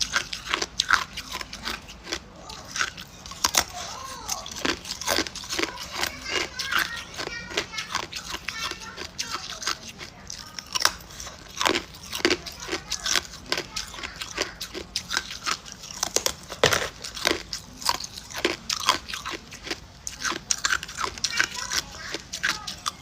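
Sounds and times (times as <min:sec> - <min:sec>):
ice cubes crunching between teeth: 0:00.0 - 0:23.0.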